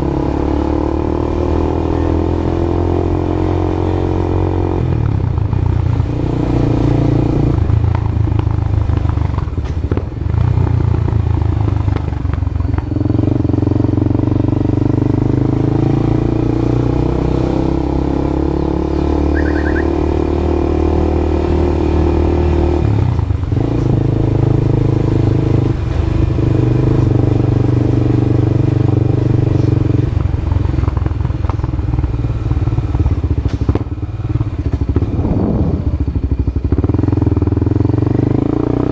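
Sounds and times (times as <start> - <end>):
motorcycle engine running loudly: 0.0 - 38.9.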